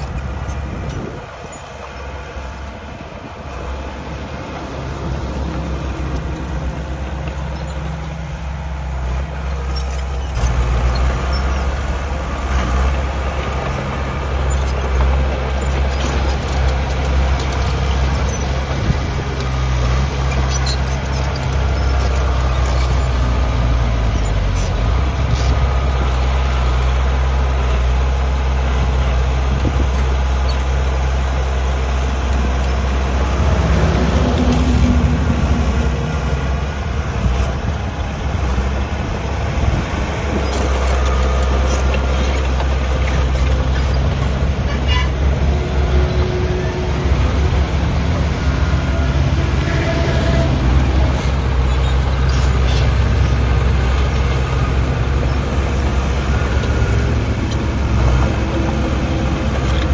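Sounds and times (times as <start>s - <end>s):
heavy machinery diesel engine: 0.0s - 59.9s
faint metallic clanks and squeaks: 7.2s - 8.2s, 9.5s - 11.8s, 14.4s - 19.0s, 20.3s - 23.2s, 40.4s - 45.3s, 51.1s - 53.4s.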